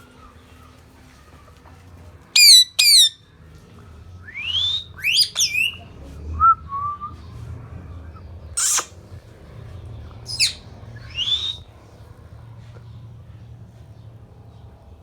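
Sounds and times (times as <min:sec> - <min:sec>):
parrot rising whistle: 0:02.4 - 0:03.2, 0:04.3 - 0:05.8, 0:08.6 - 0:08.9, 0:10.3 - 0:11.6
parrot squawking: 0:02.4 - 0:03.2, 0:04.6 - 0:05.8, 0:08.6 - 0:08.9, 0:10.3 - 0:11.6.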